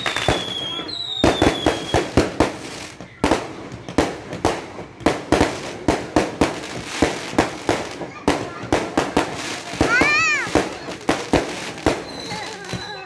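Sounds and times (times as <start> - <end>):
fireworks sharp bangs: 0.0 - 13.0.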